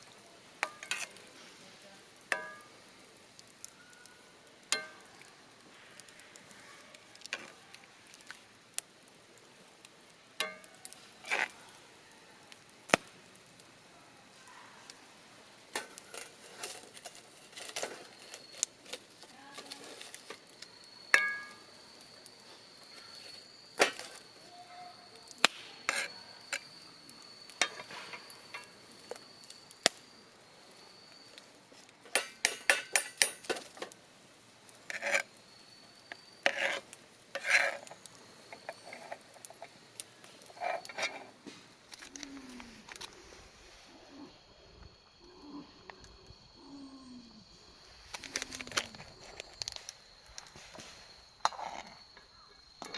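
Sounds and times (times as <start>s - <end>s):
faint steady high tone: 0.0s - 5.7s, 17.5s - 32.0s, 35.2s - 36.9s, 41.9s - 52.9s
metal cookware clinking: 2.3s - 2.8s, 4.7s - 5.0s, 10.4s - 10.8s, 21.1s - 21.6s.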